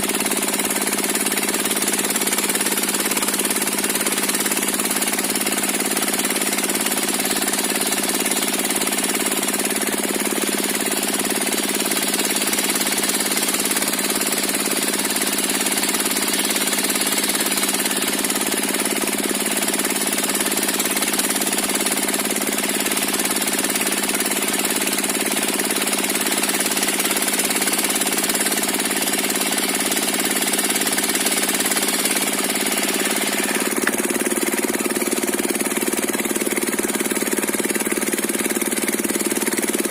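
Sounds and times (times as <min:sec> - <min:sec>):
diesel engine running: 0:30.0 - 0:39.9.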